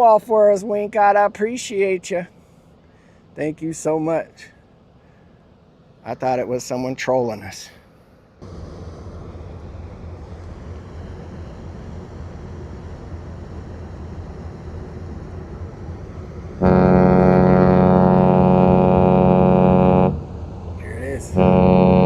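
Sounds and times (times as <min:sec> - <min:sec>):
low outdoor rumble: 0:00.0 - 0:22.0
deep ship horn blast: 0:08.4 - 0:11.0, 0:15.2 - 0:22.0.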